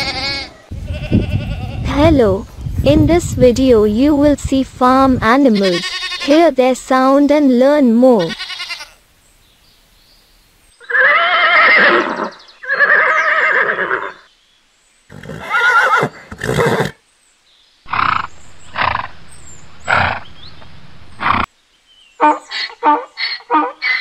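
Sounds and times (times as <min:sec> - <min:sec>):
horse whinnying: 0:10.8 - 0:14.3, 0:15.1 - 0:17.0.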